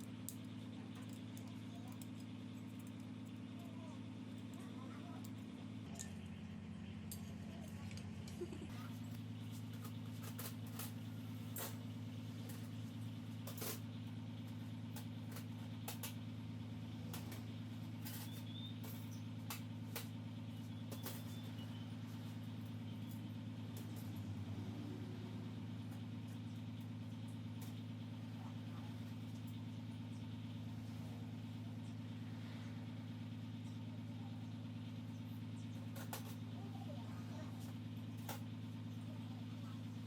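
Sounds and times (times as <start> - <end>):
steady low hum: 0.0 - 40.0
tools and metal parts clicking: 0.2 - 3.6.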